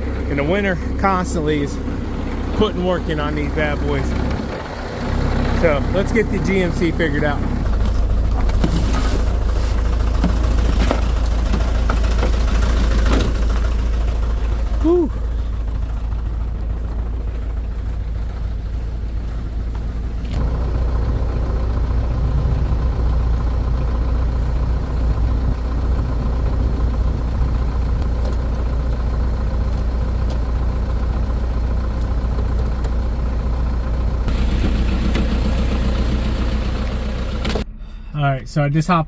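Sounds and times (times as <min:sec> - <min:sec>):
truck engine idling: 0:00.0 - 0:39.0.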